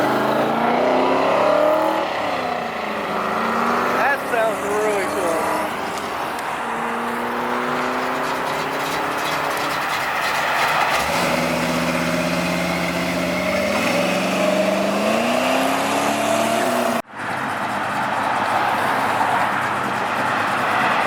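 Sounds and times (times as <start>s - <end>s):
car engine accelerating: 0.0s - 21.0s.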